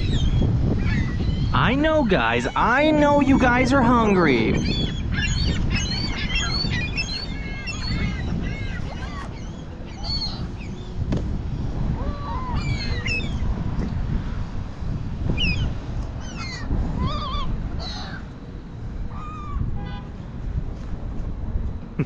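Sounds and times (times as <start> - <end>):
gulls squawking: 0.0 - 11.0, 12.0 - 13.5, 15.4 - 18.3, 19.1 - 20.1
steady low rumble: 0.0 - 22.0.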